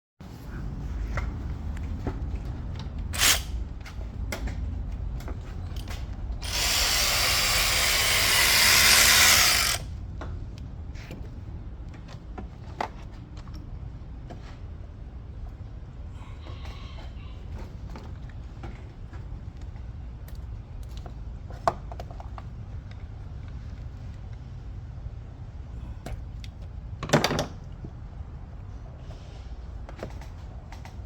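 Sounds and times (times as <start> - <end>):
cordless power tool running: 3.2 - 3.5, 6.4 - 9.9.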